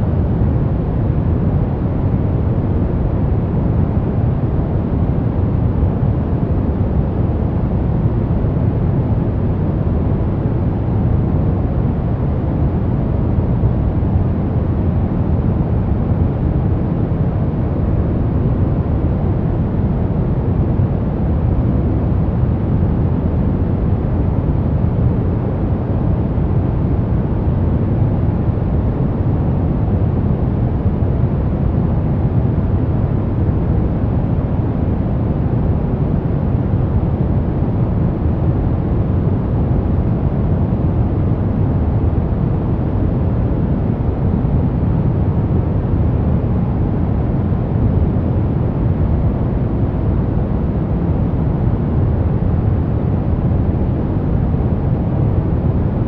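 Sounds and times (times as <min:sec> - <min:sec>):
deep rumbling white noise: 0:00.0 - 0:56.0.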